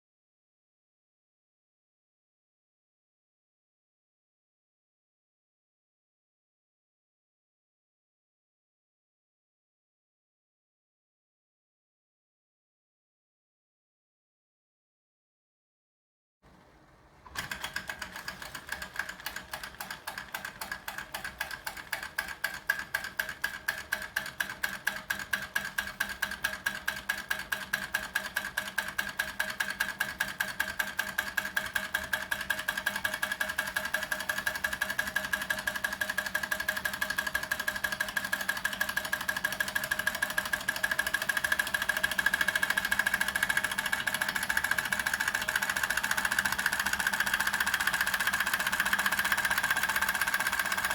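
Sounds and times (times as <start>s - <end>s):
toy steam engine ticking: 17.4s - 50.9s.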